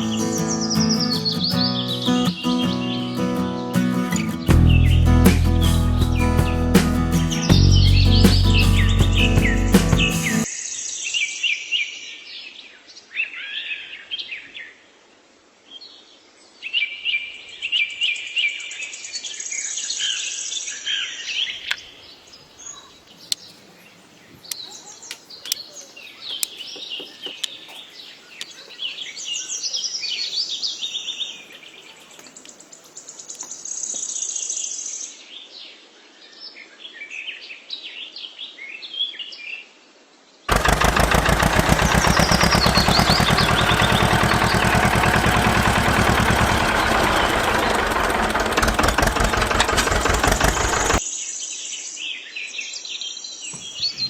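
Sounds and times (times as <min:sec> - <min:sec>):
small birds chirping: 0:00.0 - 0:11.3, 0:19.4 - 0:35.1, 0:40.5 - 0:51.1, 0:53.0 - 0:54.0
fast-pulsing mechanical buzz: 0:40.5 - 0:51.0.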